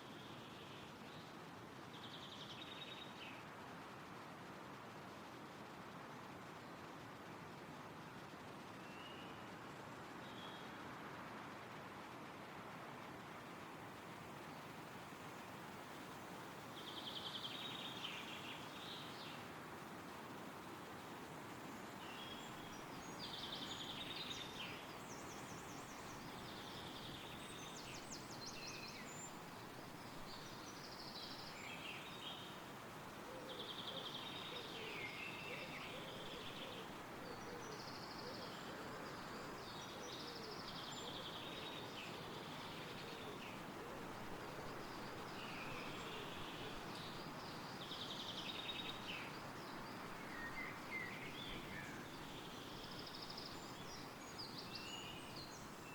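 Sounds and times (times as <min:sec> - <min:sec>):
wind rustling through trees: 0:00.0 - 0:55.9
songbirds singing: 0:14.4 - 0:55.9.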